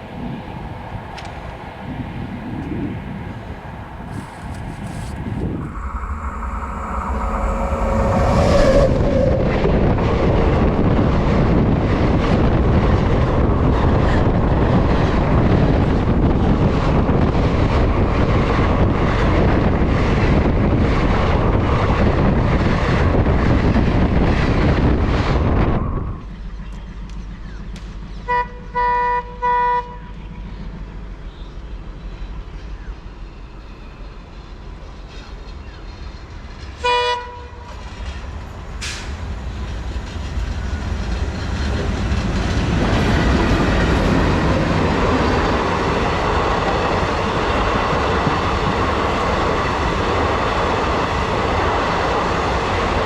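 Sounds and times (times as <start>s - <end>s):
train horn: 6.1s - 10.2s, 28.2s - 30.2s, 36.8s - 37.8s
horn toots: 28.2s - 30.1s
train wheels clattering: 34.4s - 53.0s.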